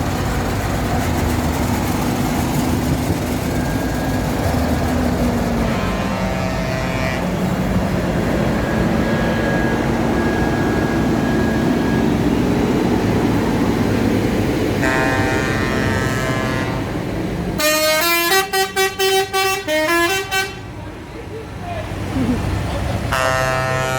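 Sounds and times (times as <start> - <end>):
tractor engines running: 0.0 - 23.9
horn sounding: 5.4 - 7.6, 14.8 - 17.0, 17.6 - 20.7, 23.1 - 23.9
musical horn playing a tune: 5.6 - 7.3, 14.8 - 16.8, 17.6 - 20.6.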